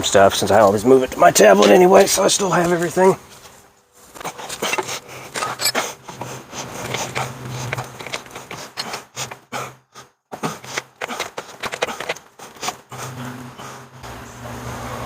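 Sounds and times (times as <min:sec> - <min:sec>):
grease gun clicking and scraping: 0:04.1 - 0:09.7, 0:10.4 - 0:13.0.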